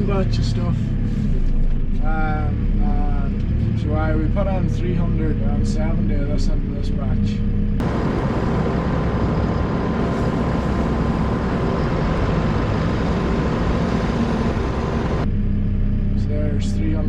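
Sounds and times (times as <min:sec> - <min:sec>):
farm machinery rushing noise: 0:07.8 - 0:15.3.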